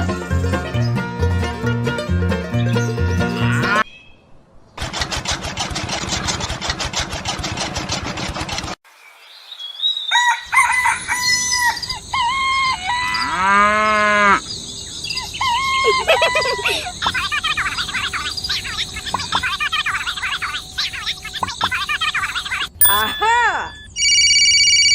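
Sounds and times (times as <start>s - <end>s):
dense rapid rattling: 4.8s - 8.8s
rooster crowing: 10.1s - 14.4s
hens clucking and cackling: 15.2s - 22.7s.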